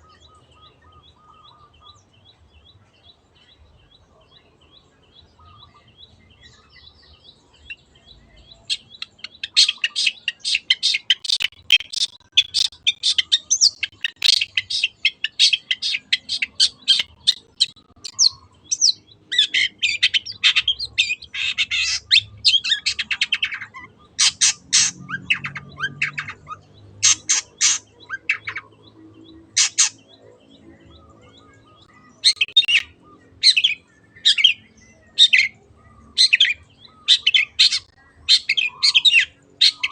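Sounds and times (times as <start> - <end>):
bird chirping and chattering: 8.6 - 30.1, 32.2 - 34.6, 36.2 - 39.9.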